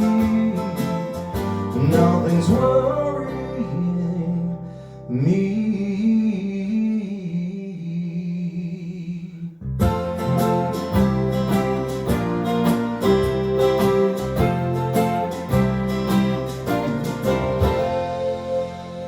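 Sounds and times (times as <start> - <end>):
strummed acoustic guitar chords: 0.0 - 4.9, 9.8 - 19.0
man singing: 0.0 - 9.6.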